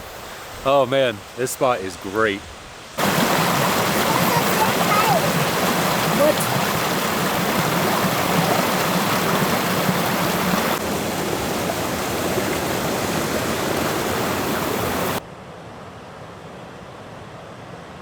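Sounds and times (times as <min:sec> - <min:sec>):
steady hiss: 0:00.0 - 0:10.8
waterfall rushing: 0:03.0 - 0:15.2.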